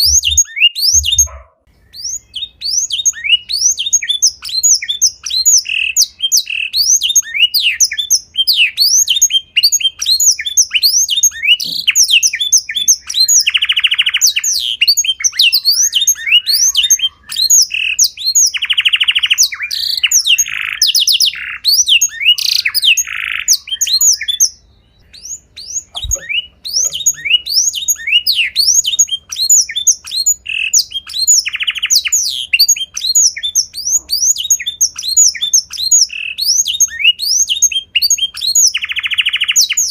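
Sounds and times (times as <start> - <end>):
buzzy bird trills: 0.0 - 3.3, 25.0 - 37.5
songbird chirping and whistling: 0.0 - 39.9.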